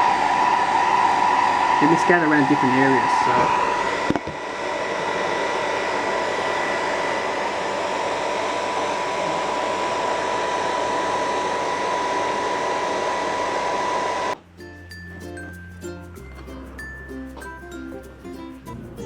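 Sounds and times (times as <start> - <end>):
hair dryer whining: 0.0 - 14.4.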